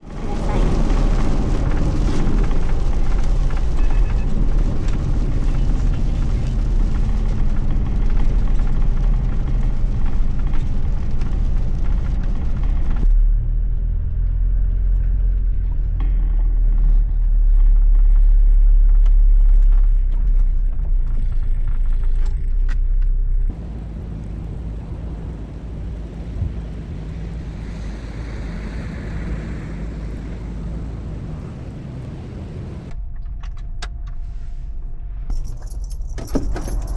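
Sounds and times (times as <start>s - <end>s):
rain and road spray hiss: 0.0s - 12.2s, 23.5s - 32.9s
low engine and road rumble: 0.0s - 36.9s.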